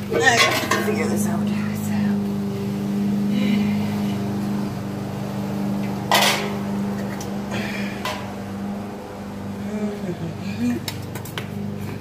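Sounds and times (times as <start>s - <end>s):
steady low hum: 0.0s - 12.0s
metal clank: 0.1s - 1.3s, 6.0s - 7.3s.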